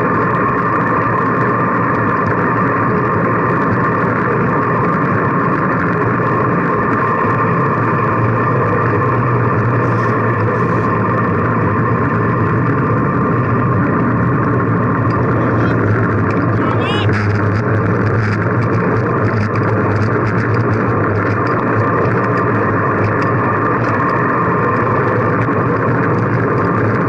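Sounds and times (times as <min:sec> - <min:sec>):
wind and road noise while cycling: 0:00.0 - 0:27.0.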